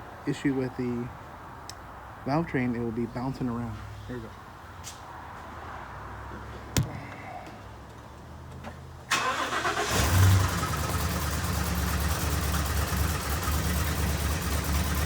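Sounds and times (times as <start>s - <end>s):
misfiring car engine starting: 9.1s - 15.0s.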